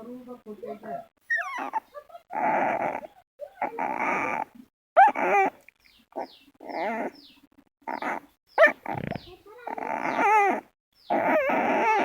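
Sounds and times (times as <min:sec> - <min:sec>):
puppy growling: 0:01.2 - 0:05.6, 0:06.2 - 0:12.0
puppy whining yelps: 0:01.2 - 0:05.6, 0:06.2 - 0:07.2, 0:07.9 - 0:12.0.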